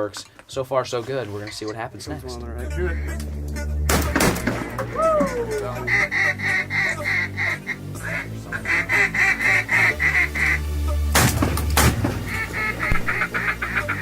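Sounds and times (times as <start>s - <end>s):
low background music: 1.0s - 14.0s
duck quacking: 2.7s - 3.2s, 5.3s - 14.0s.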